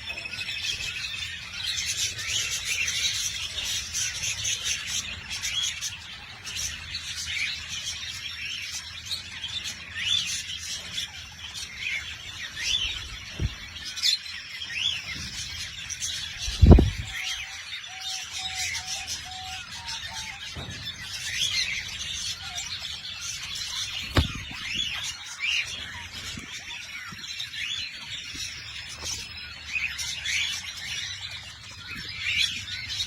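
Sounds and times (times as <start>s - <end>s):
loud thump: 24.0s - 24.8s.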